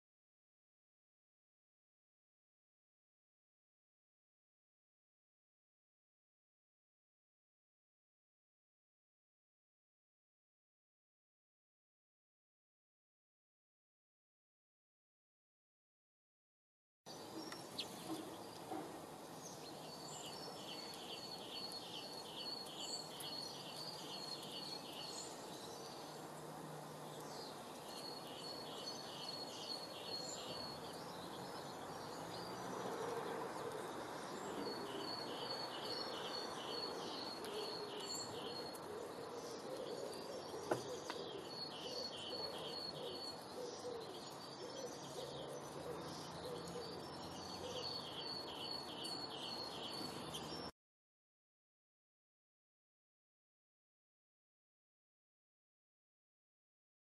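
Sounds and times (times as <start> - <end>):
songbird singing: 17.1 - 50.7
outdoor background noise: 17.1 - 50.8.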